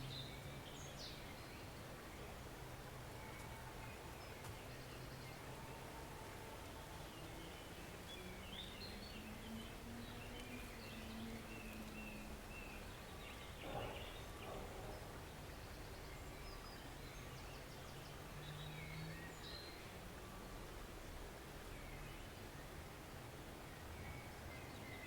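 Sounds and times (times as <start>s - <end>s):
small birds chirping and trilling: 0.0s - 20.0s
stream running: 0.0s - 25.0s.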